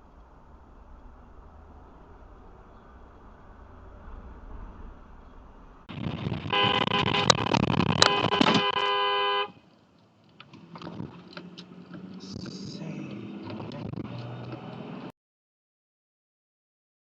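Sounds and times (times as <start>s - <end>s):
low hum: 0.0s - 9.9s
traffic noise: 0.0s - 15.1s
clicks: 6.0s - 9.0s
car horn blast: 6.5s - 9.6s.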